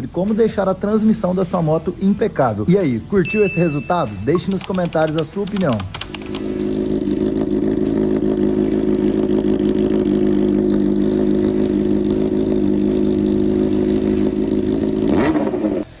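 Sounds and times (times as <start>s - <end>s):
motorcycle engine idling: 4.5s - 16.0s.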